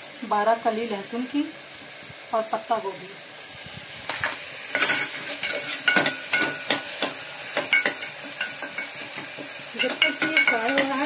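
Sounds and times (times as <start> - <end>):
onions and tomatoes sizzling in oil: 0.0 - 11.0
metal ladle scraping a pot: 4.1 - 7.1.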